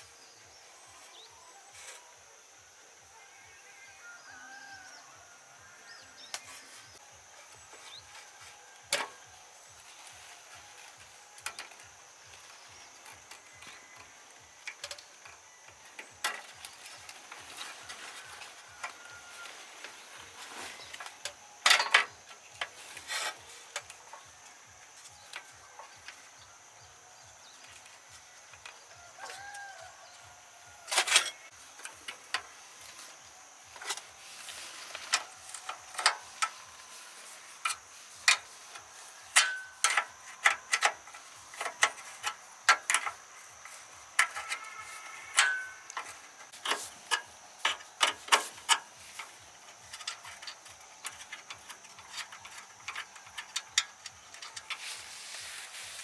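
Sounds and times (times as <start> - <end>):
rubbing or scraping: 54.4 - 56.0.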